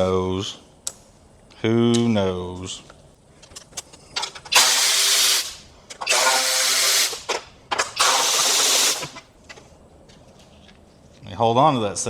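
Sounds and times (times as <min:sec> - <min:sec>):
power tool spinning out bolts: 0:04.4 - 0:09.2.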